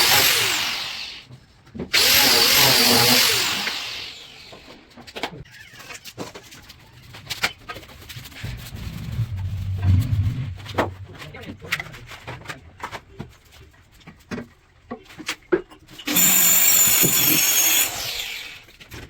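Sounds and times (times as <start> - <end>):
power tool motor: 0.0 - 1.2, 2.0 - 4.7, 16.1 - 18.7.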